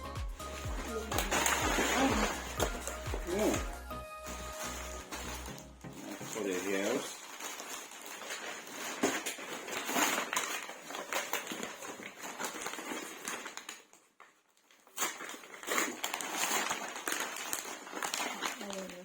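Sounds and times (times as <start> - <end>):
packaging rustling and crinkling: 0.0 - 19.0.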